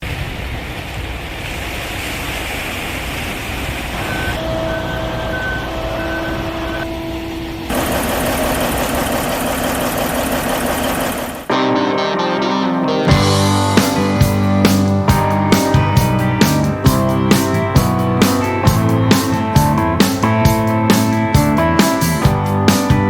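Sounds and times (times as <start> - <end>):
diesel engine running: 3.2 - 11.5, 13.1 - 23.0
reversing alarm beeping: 3.9 - 9.0.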